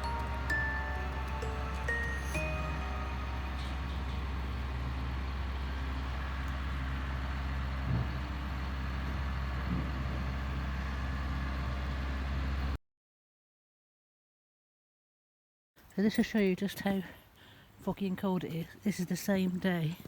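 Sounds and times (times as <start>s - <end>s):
low engine hum: 0.0s - 12.8s.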